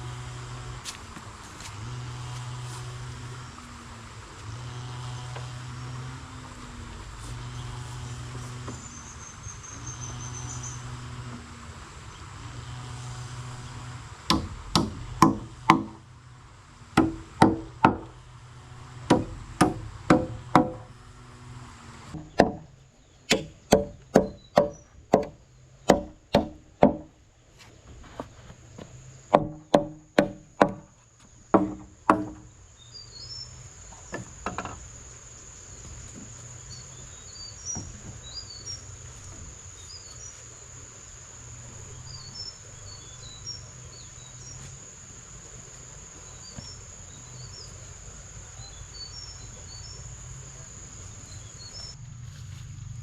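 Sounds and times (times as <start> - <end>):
insect drone: 0.0 - 53.0
tool striking wood: 14.3 - 16.0, 17.0 - 18.2, 19.0 - 21.0, 22.2 - 22.7, 23.3 - 27.1, 29.3 - 30.9, 31.5 - 32.5, 34.1 - 34.8.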